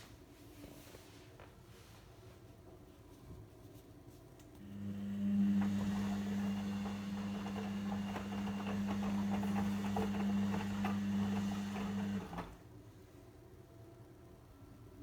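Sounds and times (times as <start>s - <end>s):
mains hum: 0.0s - 15.0s
washing machine running: 4.6s - 12.7s.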